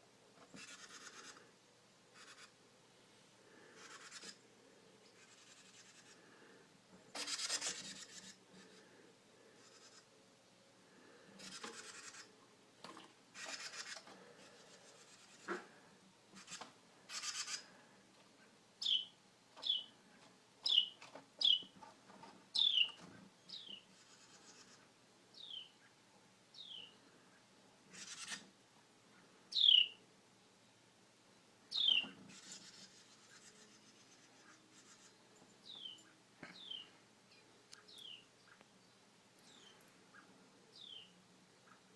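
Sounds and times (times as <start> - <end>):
small bird chirping: 2.2 - 2.5, 3.8 - 4.4, 5.0 - 6.2, 11.4 - 12.3, 18.4 - 20.0, 20.6 - 21.8, 22.5 - 28.5, 29.5 - 30.0, 31.7 - 41.9.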